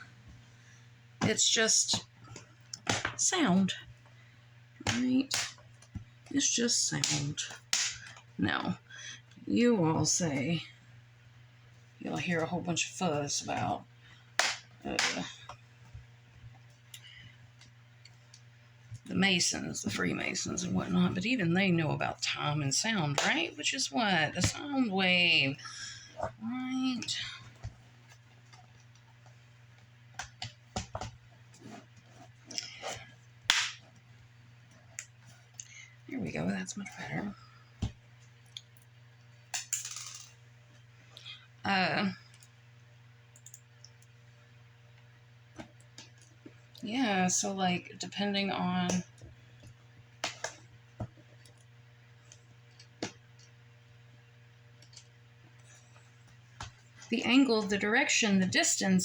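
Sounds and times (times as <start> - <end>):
steady low hum: 0.0 - 59.0
small parts and screws clicking: 39.6 - 40.4.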